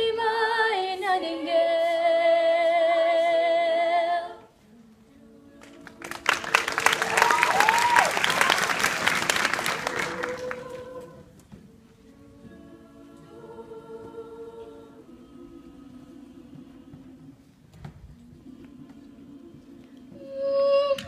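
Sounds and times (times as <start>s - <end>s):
choir singing a chord: 2.5s - 6.8s, 9.5s - 17.5s, 18.2s - 20.5s
audience applause: 5.6s - 11.0s
audience cheering: 6.2s - 11.0s.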